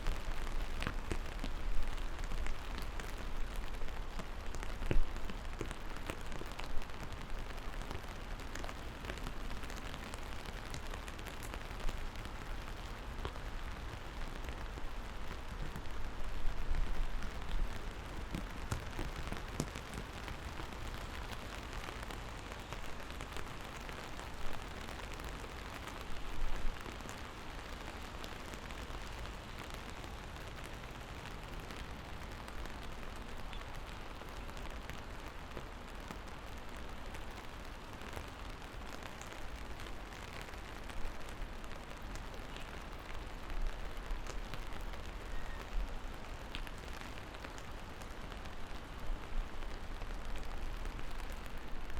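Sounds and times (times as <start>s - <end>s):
steady rain on hard surfaces: 0.0s - 51.9s.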